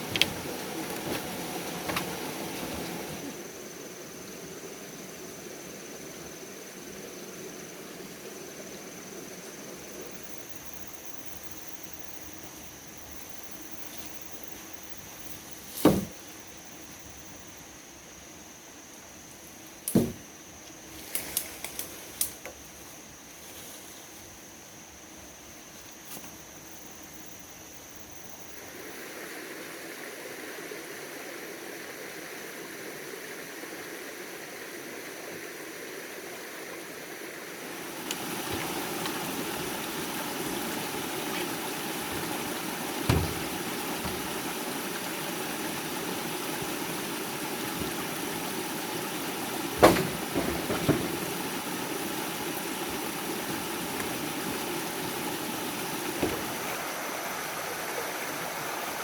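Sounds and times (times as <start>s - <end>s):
stream water flowing: 0.0s - 17.4s, 28.2s - 59.0s
sharp knocks: 19.9s - 20.2s, 43.0s - 44.4s, 49.7s - 51.6s, 56.1s - 56.7s.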